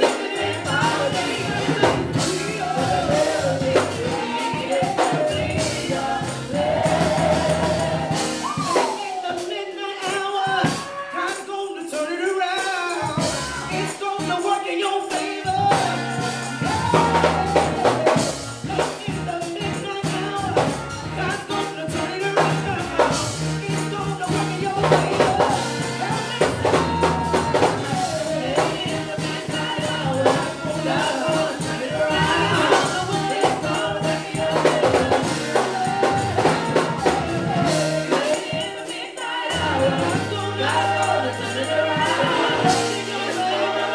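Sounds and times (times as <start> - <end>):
people singing: 0.0 - 43.9
tambourine beaten fast: 0.0 - 43.9
held bass notes: 0.5 - 8.6, 15.5 - 19.2, 20.1 - 38.2.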